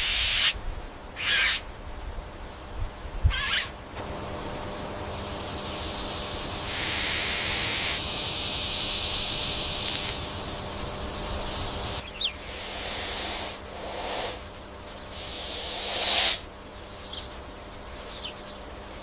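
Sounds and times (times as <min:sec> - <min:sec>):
snake hissing: 0:00.0 - 0:00.6, 0:04.4 - 0:16.5.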